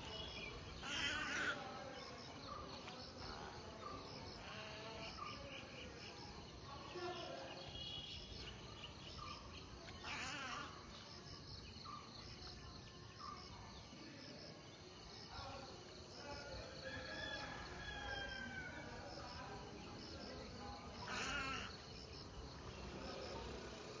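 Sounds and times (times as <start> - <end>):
birds calling: 0.0 - 3.2, 7.6 - 11.0, 20.9 - 23.8.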